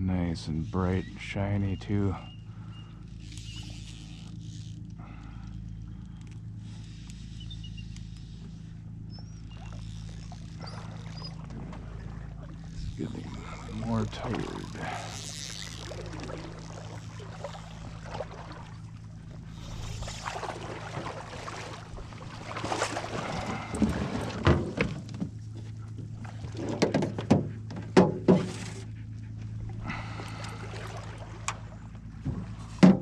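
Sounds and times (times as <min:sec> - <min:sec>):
steady low hum: 0:00.0 - 0:33.0
fish thrashing in water: 0:08.9 - 0:27.2, 0:28.7 - 0:32.7.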